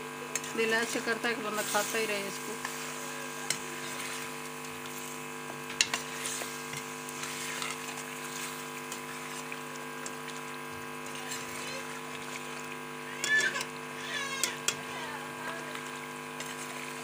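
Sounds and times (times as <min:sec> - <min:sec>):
chicken sizzling in oil: 0:00.0 - 0:17.0
steady hum: 0:00.0 - 0:17.0
spatula scraping and tapping: 0:00.3 - 0:12.6, 0:13.2 - 0:17.0
metal spatula clanking on pot: 0:05.7 - 0:06.1.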